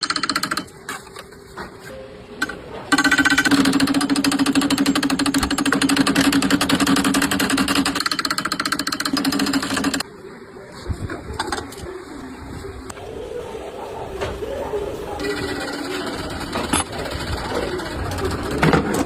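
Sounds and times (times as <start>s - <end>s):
workshop machine hammering rattle: 0.0s - 1.1s, 2.4s - 10.0s, 15.2s - 19.0s.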